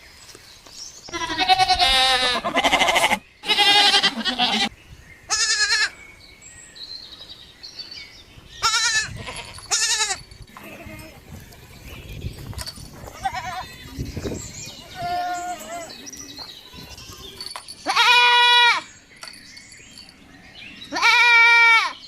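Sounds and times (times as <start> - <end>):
animal bleating: 1.1 - 4.7, 5.3 - 6.0, 8.6 - 11.3, 13.1 - 14.0, 14.8 - 18.9, 20.9 - 22.0.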